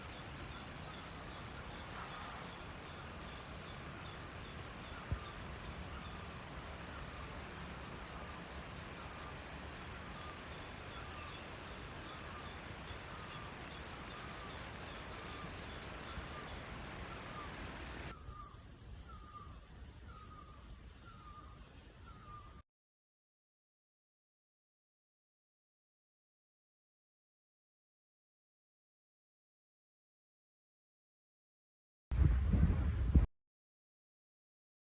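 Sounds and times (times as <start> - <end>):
short chirping call: 0.0 - 19.4
insects buzzing: 0.0 - 22.6.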